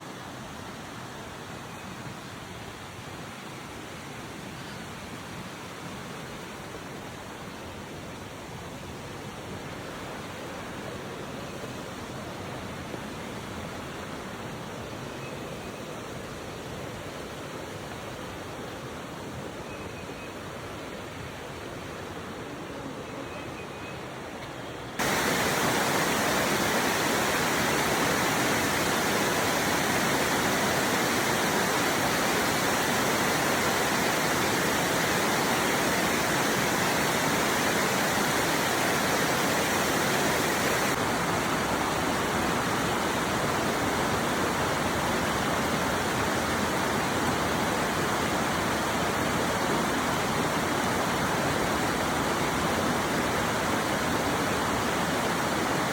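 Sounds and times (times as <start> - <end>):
waterfall rushing: 24.9 - 55.9.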